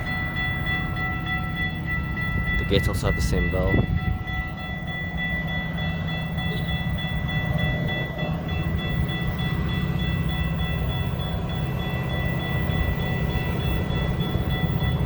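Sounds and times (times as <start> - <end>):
diesel train rumbling: 0.0 - 15.0
railroad crossing bells ringing: 0.0 - 15.0.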